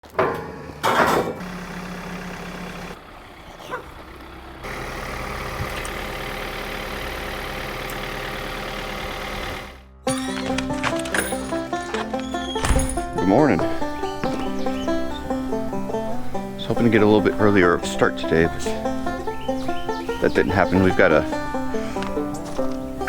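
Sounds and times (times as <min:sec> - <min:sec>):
tractor engine running: 0:00.0 - 0:23.0
music with stepped notes: 0:10.0 - 0:23.0.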